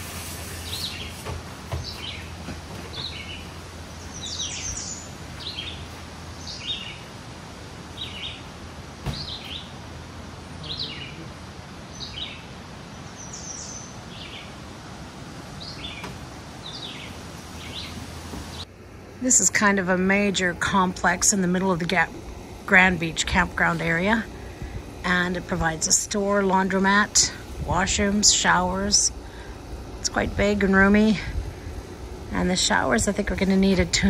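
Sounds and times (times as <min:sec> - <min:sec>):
steady low hum: 0:00.0 - 0:34.0
songbirds chirping: 0:00.6 - 0:18.7.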